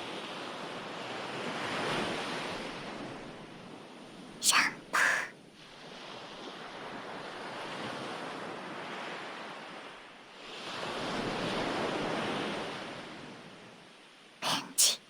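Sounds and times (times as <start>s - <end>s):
ocean waves washing onto shore: 5.2s - 14.2s.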